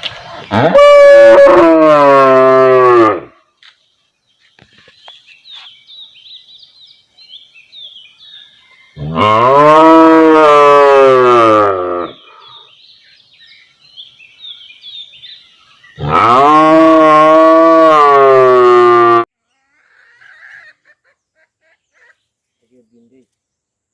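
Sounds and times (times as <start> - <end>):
cow mooing: 0.5 - 3.3, 9.0 - 12.2, 16.0 - 19.2.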